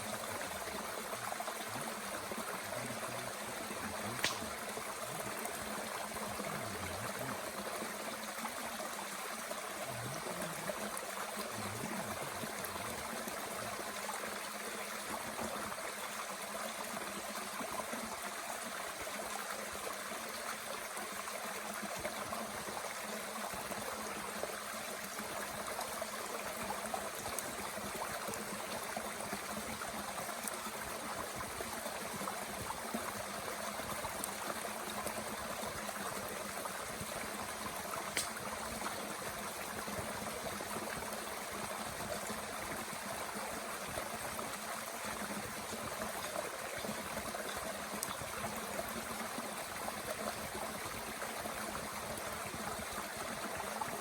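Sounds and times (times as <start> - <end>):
stream running: 0.0 - 54.0
wood fire crackling: 4.2 - 4.8, 38.1 - 38.5.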